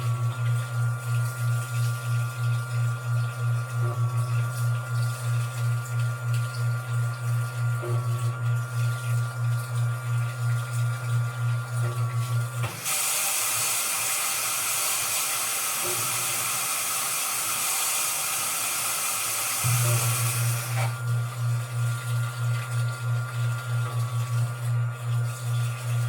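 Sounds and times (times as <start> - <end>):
washing machine motor hum: 0.0 - 26.0
water rushing into drum: 12.6 - 21.2.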